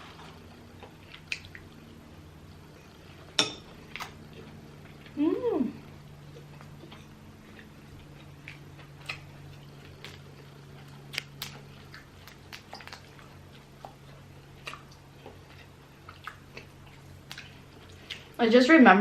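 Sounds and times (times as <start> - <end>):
chewing and wet sucking: 0.0 - 18.4
steady low hum: 0.0 - 19.0.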